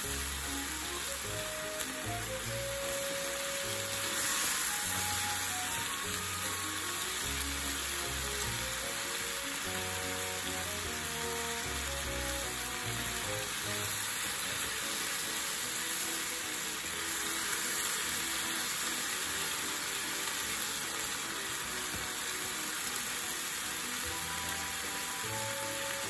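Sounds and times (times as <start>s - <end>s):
light background music: 0.0s - 26.0s
meat and onion sizzling in a pan: 0.0s - 26.0s.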